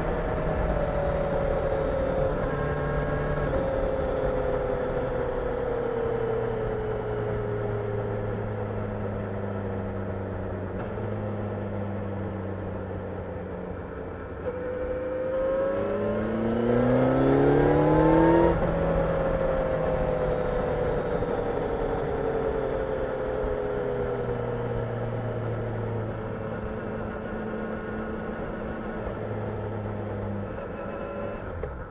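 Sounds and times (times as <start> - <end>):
motorcycle engine revving: 14.4 - 31.8.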